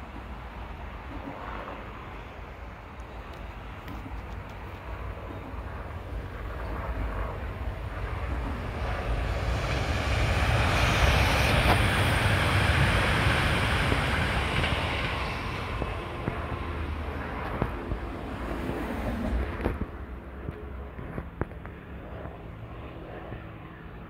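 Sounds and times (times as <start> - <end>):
wheels rushing on rail: 0.0 - 20.8
passenger train passing: 0.0 - 24.0.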